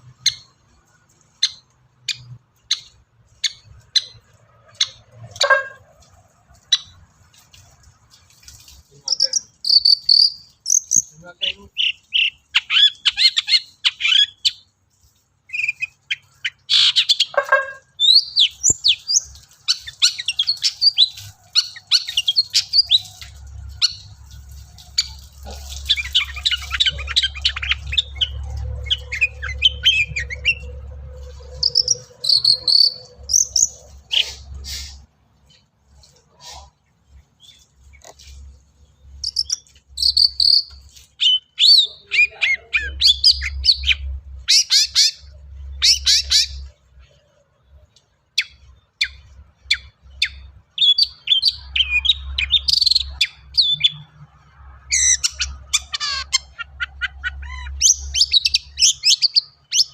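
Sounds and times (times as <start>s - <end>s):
sharp bird ticks: 8.4s - 11.2s, 18.0s - 28.4s, 31.6s - 34.3s, 39.1s - 41.0s
bird singing: 9.0s - 35.0s, 36.5s - 47.4s, 48.3s - 54.2s, 54.8s - 59.9s
high chirps and trills: 9.0s - 36.6s, 37.4s - 46.8s.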